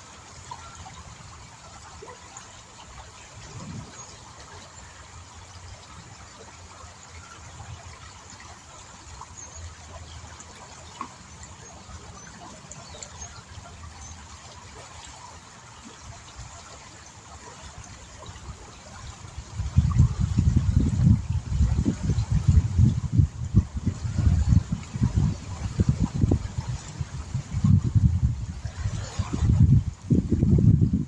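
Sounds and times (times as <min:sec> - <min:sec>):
river water trickling: 0:00.0 - 0:31.0.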